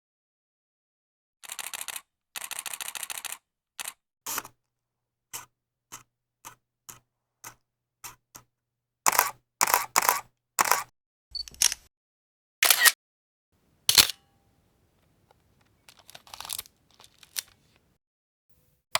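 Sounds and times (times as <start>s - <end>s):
camera shutter bursts: 1.4s - 4.5s, 9.1s - 10.9s, 12.6s - 13.0s, 13.9s - 14.3s
single camera shutter clicks: 9.1s - 11.8s, 12.6s - 13.0s, 13.9s - 14.3s.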